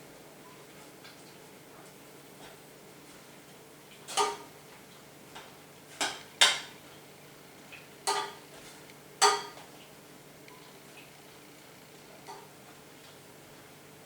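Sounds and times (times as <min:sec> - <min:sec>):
metal clinking against cooking pot: 0:08.1 - 0:08.4, 0:09.2 - 0:09.6.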